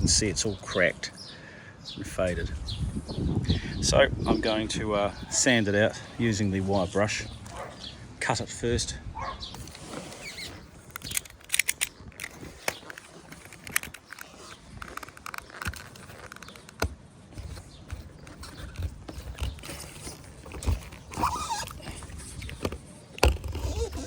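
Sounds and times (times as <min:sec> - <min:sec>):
box cutter scraping sealant: 0:12.5 - 0:24.0.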